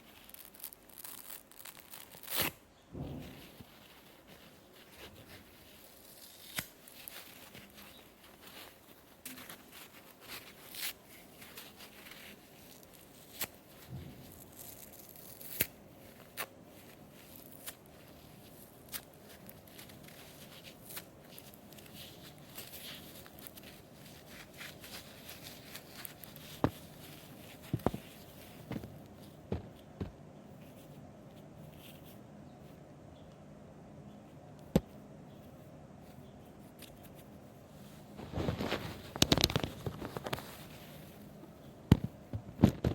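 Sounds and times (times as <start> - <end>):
sponge tearing and crackling: 0.0 - 2.6, 3.4 - 28.8, 38.2 - 41.2.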